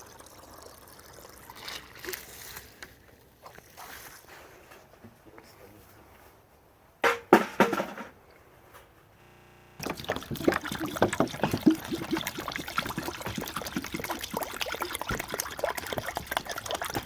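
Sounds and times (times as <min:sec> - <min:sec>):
short loud knocks: 0:07.0 - 0:08.1
water splashing into container: 0:09.8 - 0:17.0.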